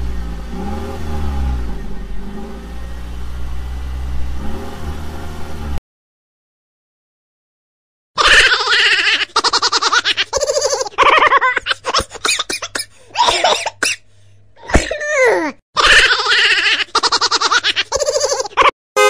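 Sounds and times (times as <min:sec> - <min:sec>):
child giggling: 0:08.2 - 0:13.7, 0:14.6 - 0:18.7.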